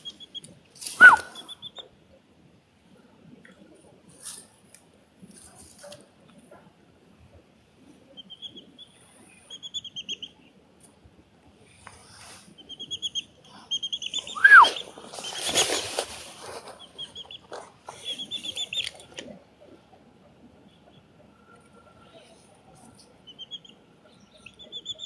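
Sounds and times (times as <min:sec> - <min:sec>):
whistle falling in pitch: 0:01.0 - 0:01.4, 0:14.4 - 0:14.7
rustling noise: 0:14.2 - 0:19.3.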